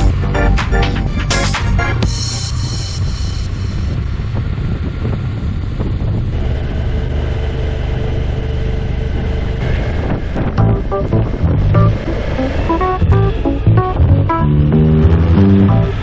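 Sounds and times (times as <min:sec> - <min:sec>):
motorcycle engine running: 0:01.9 - 0:16.0
wind on microphone: 0:02.6 - 0:06.4, 0:09.4 - 0:14.2.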